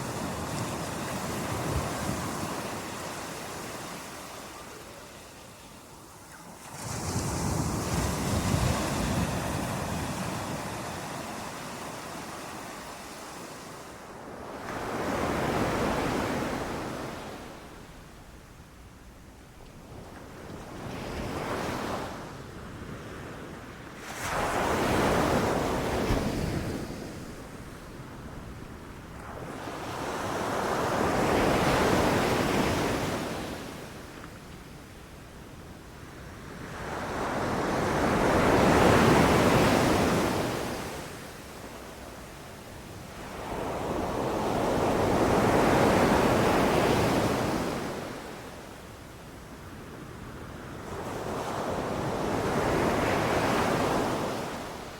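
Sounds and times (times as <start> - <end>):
ocean waves breaking: 6.2 - 17.8.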